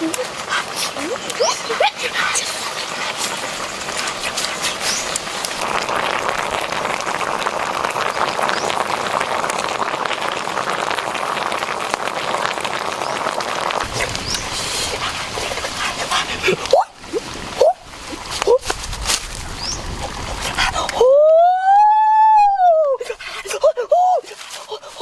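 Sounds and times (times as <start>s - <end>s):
duck frying in oil: 0.0s - 21.2s.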